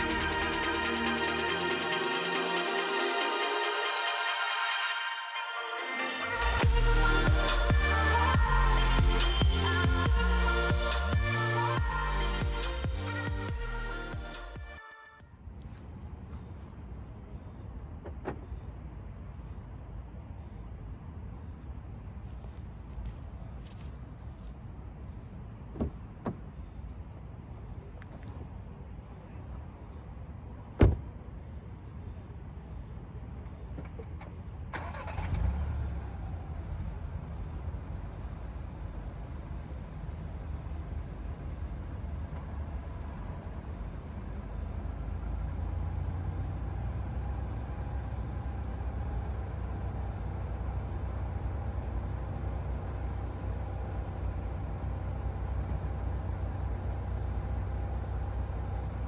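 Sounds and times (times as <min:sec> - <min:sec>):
car engine starting and idling: 0:00.0 - 0:14.8, 0:33.4 - 0:59.0.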